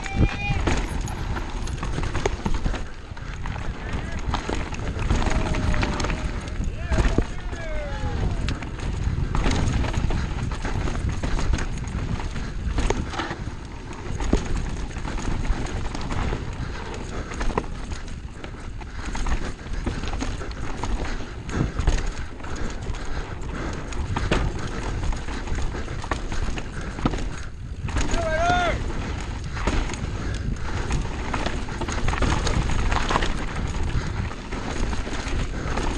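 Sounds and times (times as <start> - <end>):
bike tyres rumbling on dirt: 0.0 - 35.9
knocks and rattles from rocks: 0.6 - 7.3.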